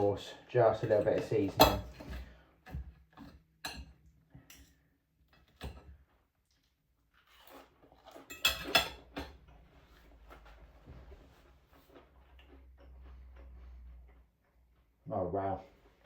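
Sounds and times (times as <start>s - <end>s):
cutlery clinking against a plate: 0.8s - 4.8s, 7.4s - 9.4s.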